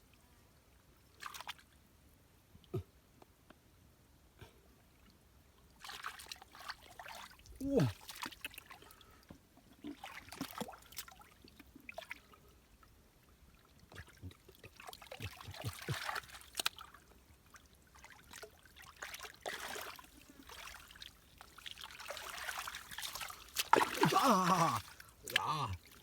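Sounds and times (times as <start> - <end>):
shallow water splashing: 19.4 - 26.0.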